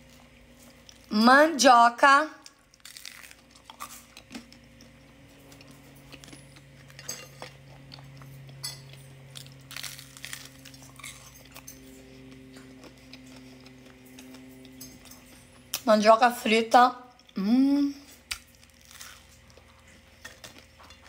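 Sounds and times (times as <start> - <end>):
faint steady hum: 0.0 - 21.0
crunchy chewing: 2.6 - 15.9, 18.2 - 21.0.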